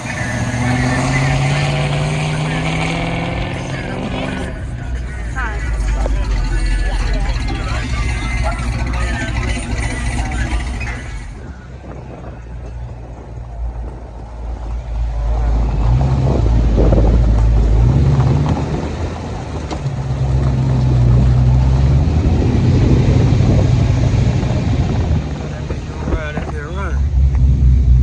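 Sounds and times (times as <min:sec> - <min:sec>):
deep car rumble: 0:00.0 - 0:28.0.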